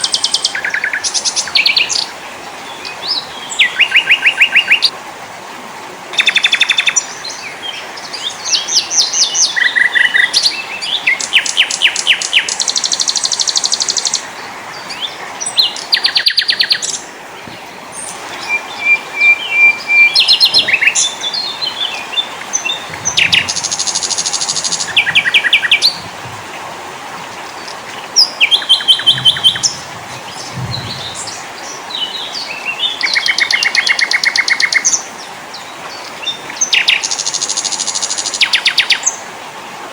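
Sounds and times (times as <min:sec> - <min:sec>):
songbirds singing and calling: 0:00.0 - 0:04.9, 0:06.1 - 0:39.9
faint hiss: 0:10.8 - 0:33.2.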